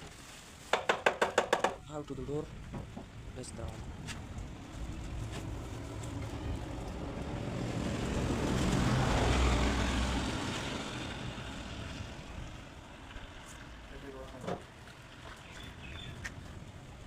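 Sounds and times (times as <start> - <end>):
vehicle passing by: 3.8 - 14.0.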